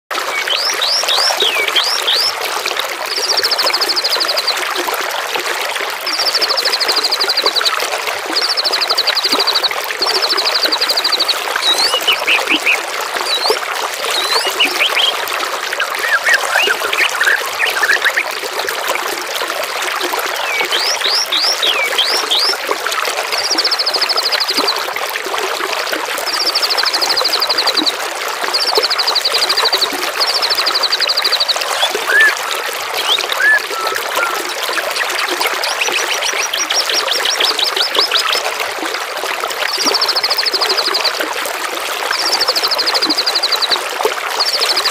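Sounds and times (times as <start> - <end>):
water trickling: 0.1 - 44.9
songbird trills: 0.3 - 2.4, 8.4 - 15.2, 15.8 - 18.2, 20.4 - 22.5, 28.6 - 38.4
downslurred bird whistles: 11.6 - 15.2, 15.8 - 18.2, 30.7 - 32.4, 33.0 - 34.4.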